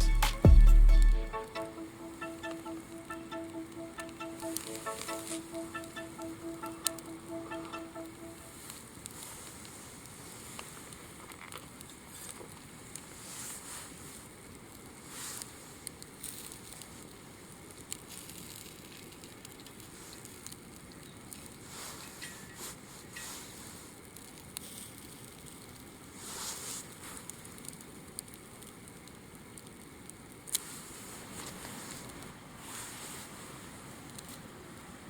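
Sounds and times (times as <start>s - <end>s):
wood fire crackling: 0.0s - 35.0s
sharp pops from fire: 8.7s - 33.3s.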